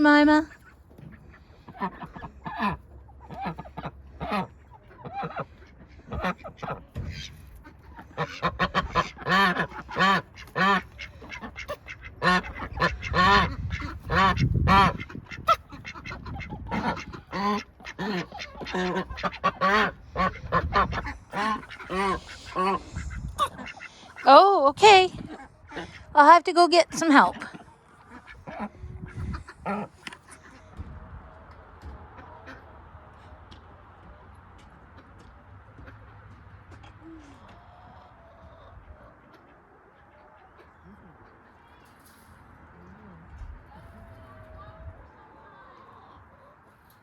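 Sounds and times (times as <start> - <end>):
ducks quacking: 0.0 - 33.4.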